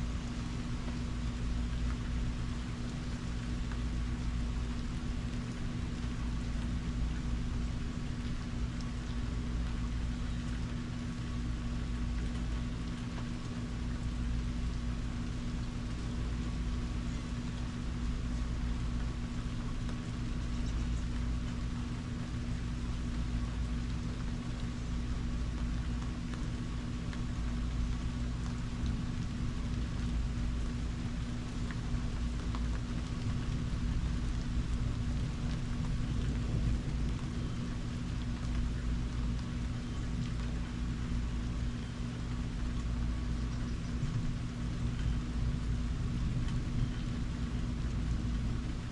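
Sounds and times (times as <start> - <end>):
constant low hum: 0.0 - 48.9
steady rain falling: 0.0 - 48.9.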